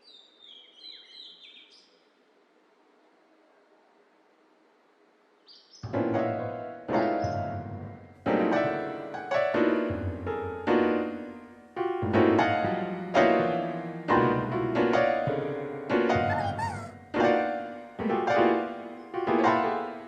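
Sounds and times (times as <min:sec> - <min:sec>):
slow sad piano chords: 0:05.9 - 0:20.0.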